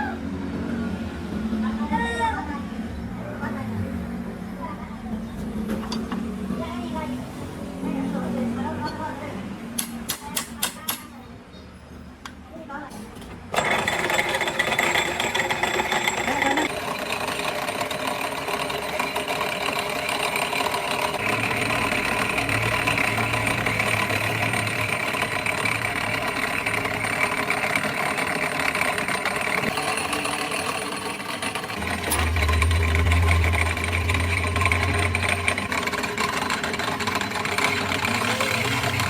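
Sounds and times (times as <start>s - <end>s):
workshop machinery running: 5.1s - 11.1s, 13.0s - 39.0s
deep hum: 31.7s - 37.0s.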